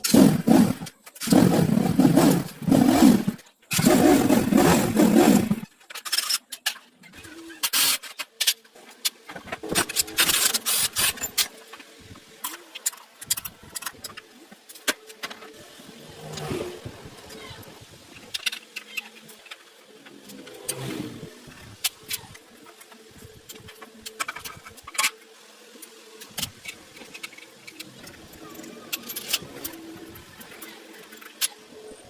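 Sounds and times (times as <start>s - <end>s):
motorcycle engine revving: 0.0s - 5.7s, 15.9s - 17.4s, 20.2s - 21.9s.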